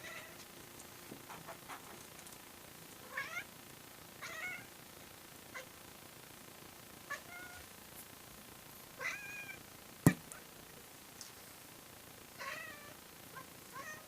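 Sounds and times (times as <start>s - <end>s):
cat meowing: 9.0s - 9.6s.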